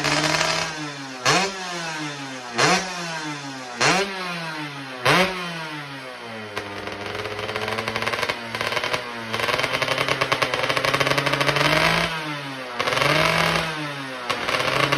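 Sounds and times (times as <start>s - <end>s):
two-stroke motorcycle engine revving: 0.0s - 14.9s.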